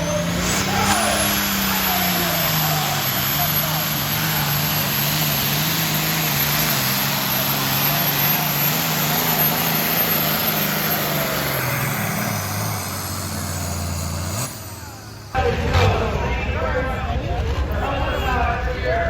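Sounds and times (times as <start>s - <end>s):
loud tractor diesel engine: 0.0s - 19.0s.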